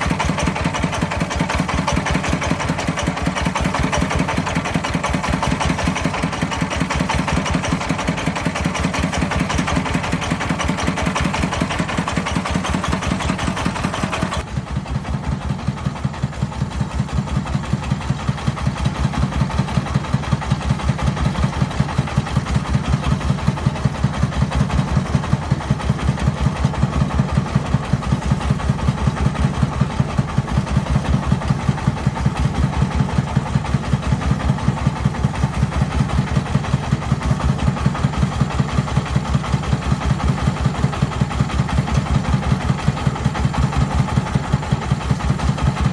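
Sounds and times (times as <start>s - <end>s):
tractor engine chugging: 0.0s - 45.9s.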